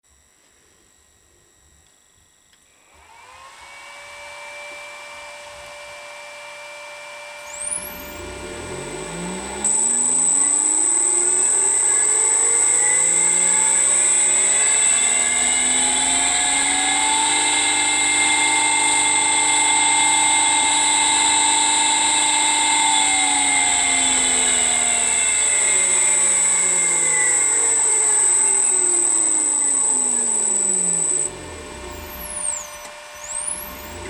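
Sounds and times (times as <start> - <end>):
electric motor hum: 7.2 - 34.0.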